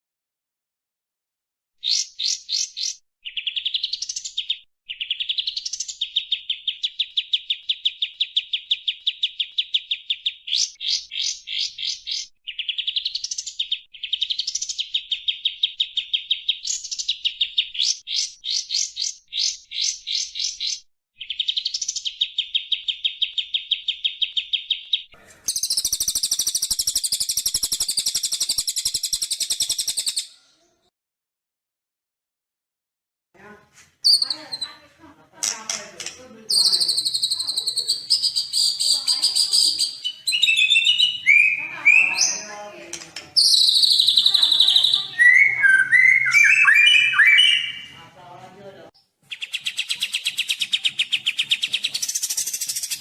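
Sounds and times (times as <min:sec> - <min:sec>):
songbird chirps and trills: 0:01.8 - 0:30.8, 0:34.0 - 0:53.0
buzzy high bird call: 0:36.5 - 0:42.5, 0:43.4 - 0:47.9.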